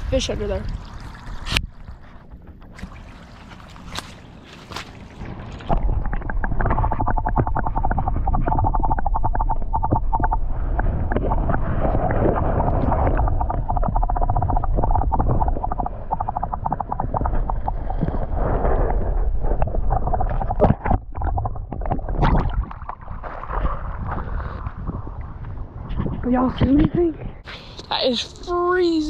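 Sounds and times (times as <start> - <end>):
underwater rushing water: 0.2 - 25.4
knocks and splashes: 0.5 - 24.2
dense crackling: 5.2 - 23.5.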